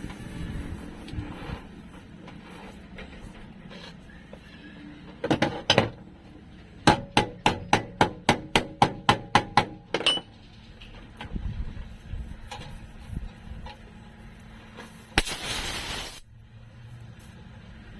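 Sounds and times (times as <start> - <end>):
hammer striking sheet metal: 6.9 - 10.3.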